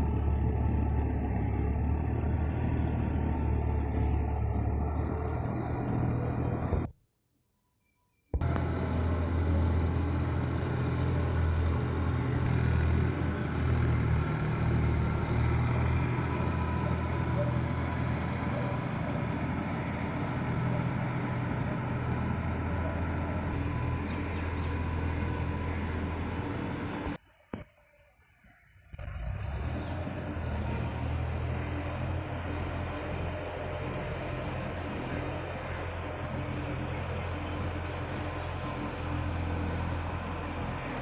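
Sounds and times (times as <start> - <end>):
tilling machine engine running: 0.0 - 6.9, 8.4 - 27.2, 29.0 - 41.0.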